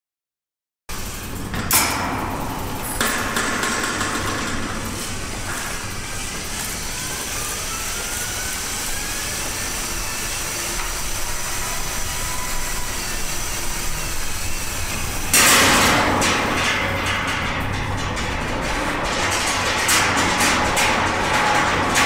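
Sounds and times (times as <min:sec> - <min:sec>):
heavy vehicle engine running: 0:00.9 - 0:22.0
loud rush of noise: 0:00.9 - 0:22.0
faint rising whine: 0:04.2 - 0:15.4.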